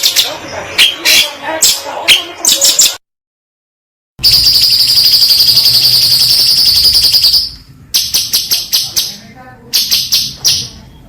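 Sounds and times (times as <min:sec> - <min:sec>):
sharp bird chirps: 0:04.2 - 0:10.8.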